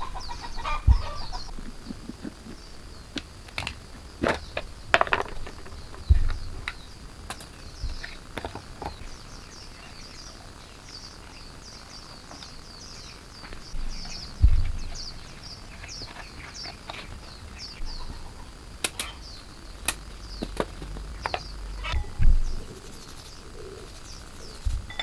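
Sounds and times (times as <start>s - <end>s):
small bird chirping: 0.0s - 25.0s
dull thump: 0.8s - 1.6s, 3.6s - 7.0s, 13.8s - 15.2s, 20.4s - 22.7s
sharp clicks: 18.5s - 22.2s.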